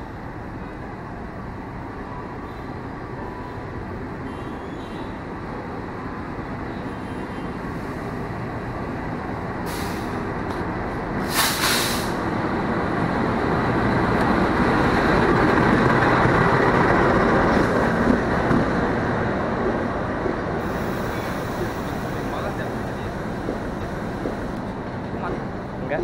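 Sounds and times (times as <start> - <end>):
diesel locomotive engine: 0.0 - 26.0
train wheels on rails: 7.6 - 26.0
short sharp hiss: 9.7 - 10.2, 11.2 - 12.2.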